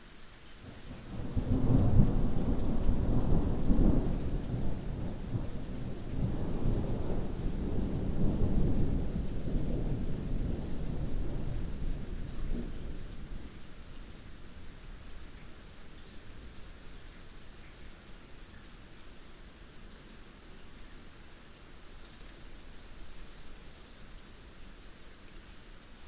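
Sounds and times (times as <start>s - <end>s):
heavy rain: 0.0s - 26.0s
thunder rolling: 1.1s - 13.8s.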